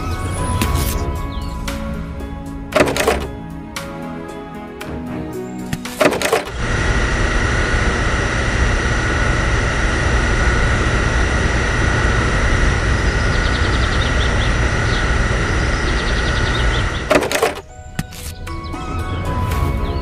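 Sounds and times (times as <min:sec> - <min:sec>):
motor running with high whine: 0:00.0 - 0:20.0.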